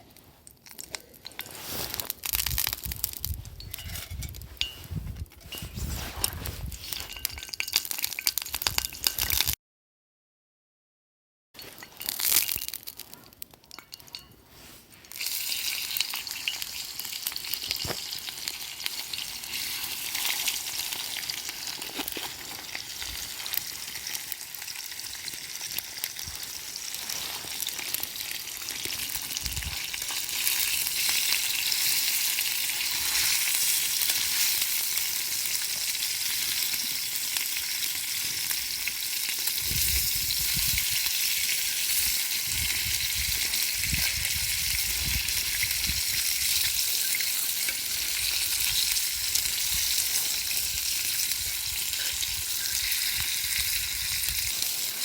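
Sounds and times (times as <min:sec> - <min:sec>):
food sizzling in oil: 0:01.3 - 0:06.0, 0:06.6 - 0:09.6, 0:11.6 - 0:55.0.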